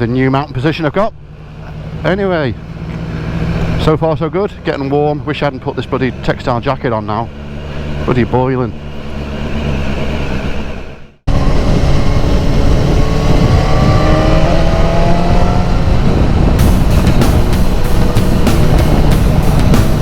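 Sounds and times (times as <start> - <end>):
motorcycle engine pulling hard: 1.0 - 20.0
background music with beat: 16.5 - 20.0.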